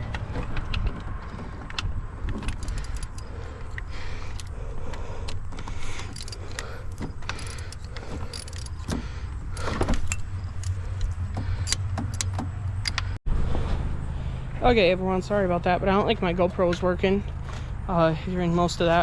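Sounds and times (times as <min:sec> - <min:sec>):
hand ratchet clicking: 0:01.7 - 0:13.1.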